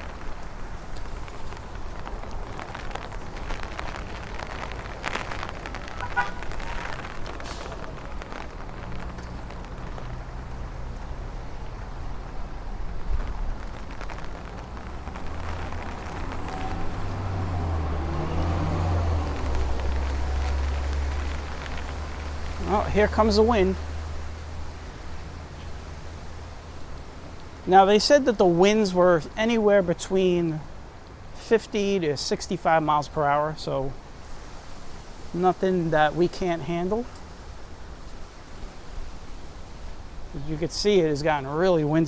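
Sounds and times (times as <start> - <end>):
wind rumbling on microphone: 0.0 - 27.7
light rain: 0.0 - 42.0
traffic on wet pavement: 0.0 - 42.0.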